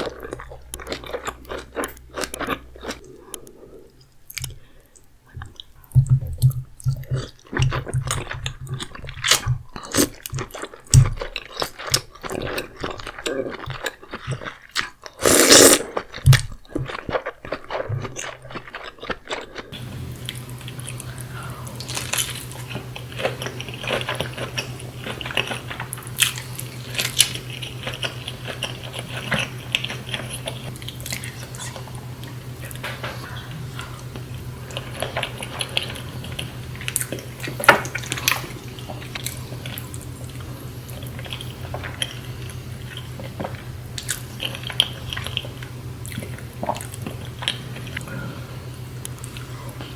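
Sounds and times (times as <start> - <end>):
steady low hum: 0.0 - 9.7, 19.7 - 49.9
wet bites and chewing: 0.0 - 48.1
food crunching: 0.0 - 49.9.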